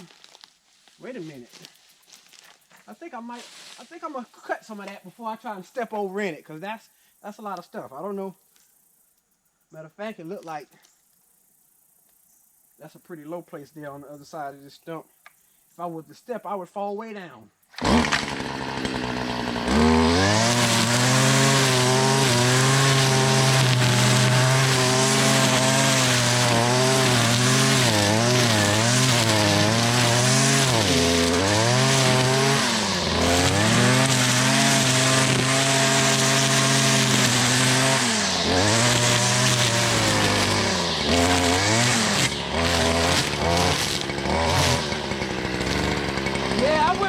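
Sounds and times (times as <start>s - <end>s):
string trimmer cutting grass: 0.0s - 3.9s, 17.7s - 47.0s.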